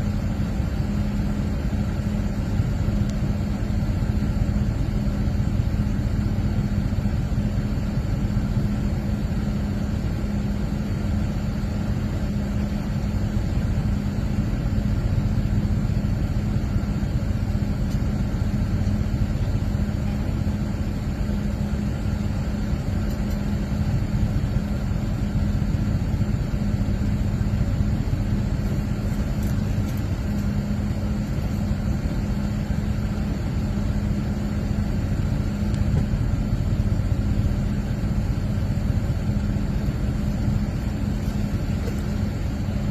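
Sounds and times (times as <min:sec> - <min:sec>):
vehicle engine running steadily: 0:00.0 - 0:42.9.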